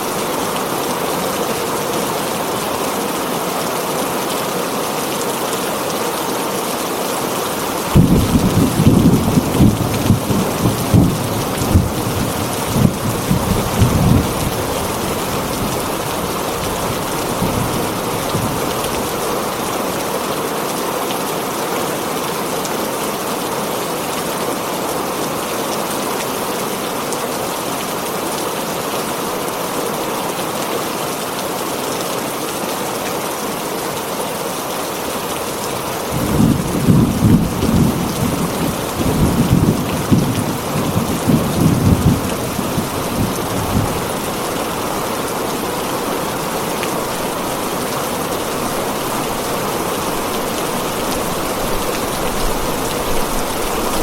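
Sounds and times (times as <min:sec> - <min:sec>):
heavy rain on a tin roof: 0:00.0 - 0:54.0
thunder rumbling: 0:07.9 - 0:16.0, 0:36.2 - 0:44.8, 0:48.4 - 0:54.0.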